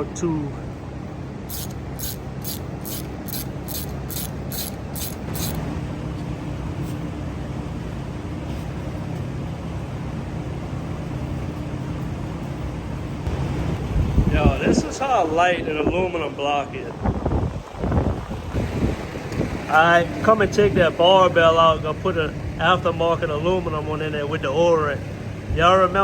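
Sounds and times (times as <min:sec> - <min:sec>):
low machine hum: 0:00.0 - 0:17.0
hissing spray bursts: 0:01.5 - 0:05.7.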